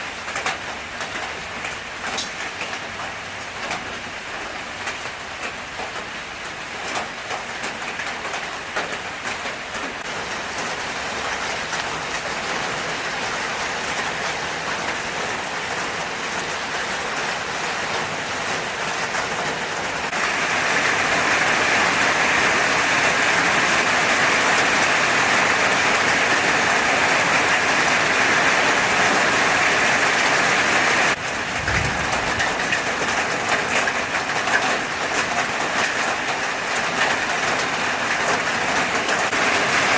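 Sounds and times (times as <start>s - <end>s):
low thud: 31.3s - 33.2s.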